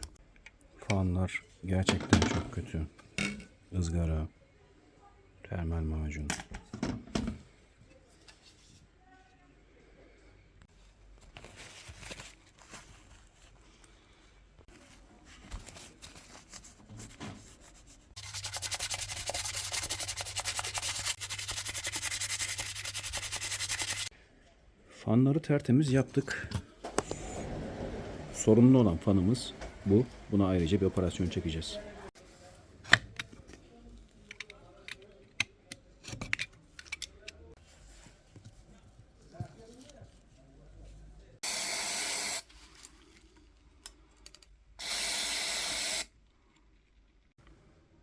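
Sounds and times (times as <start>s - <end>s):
fast even scrubbing: 18.2s - 24.1s.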